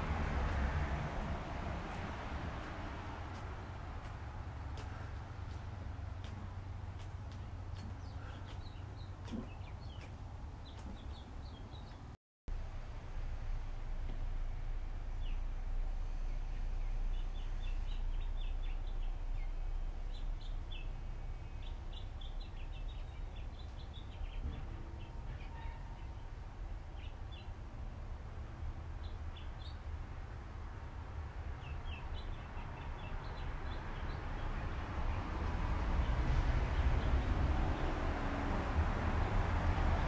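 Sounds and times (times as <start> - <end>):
low background rumble: 0.0 - 29.4
small birds chirping: 2.6 - 12.2, 16.3 - 27.6, 31.5 - 35.2.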